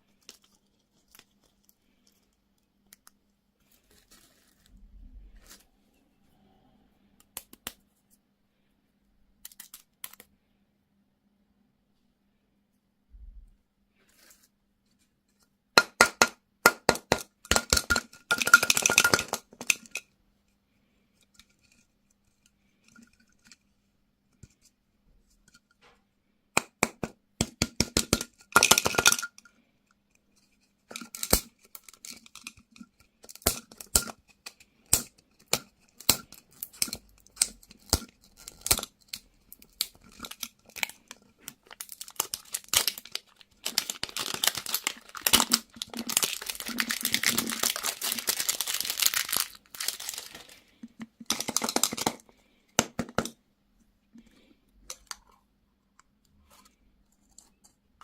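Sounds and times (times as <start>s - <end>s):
packaging crackling and clicking: 30.9s - 50.6s.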